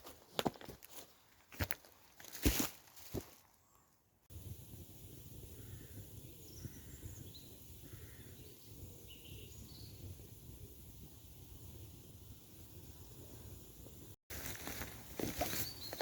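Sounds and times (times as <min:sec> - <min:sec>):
small birds chirping: 0:05.1 - 0:14.1, 0:15.2 - 0:16.0.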